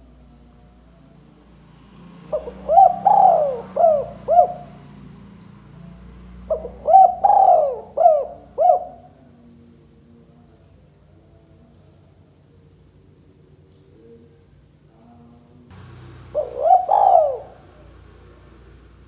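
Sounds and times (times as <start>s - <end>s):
dove cooing: 2.3s - 4.8s, 6.5s - 9.1s, 15.8s - 19.0s.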